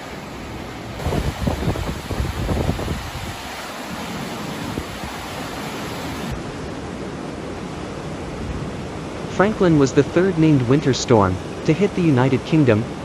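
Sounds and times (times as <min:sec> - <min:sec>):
storm wind rushing: 0:00.0 - 0:07.5
wind buffeting microphone: 0:00.9 - 0:03.6.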